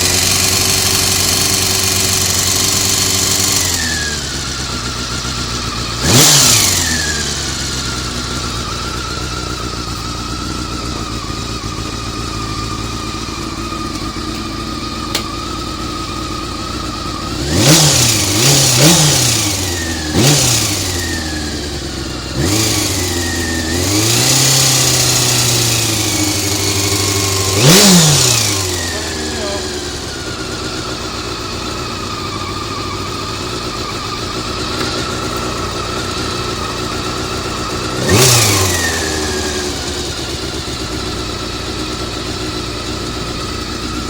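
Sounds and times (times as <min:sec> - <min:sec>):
abnormal mechanical engine noise: 0:00.0 - 0:44.0
motorcycle engine idling and revving: 0:00.0 - 0:44.0.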